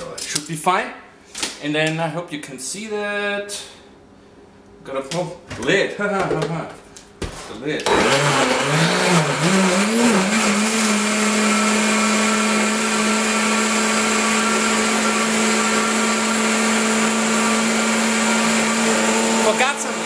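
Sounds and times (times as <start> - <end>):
blender motor running: 7.9 - 20.0.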